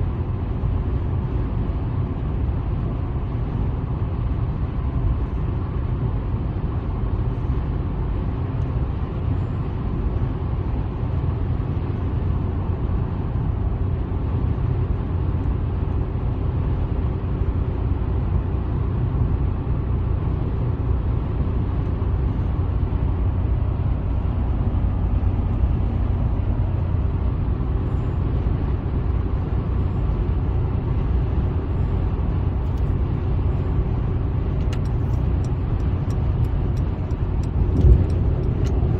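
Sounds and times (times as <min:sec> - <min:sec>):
car interior road and engine noise: 0:00.0 - 0:38.9.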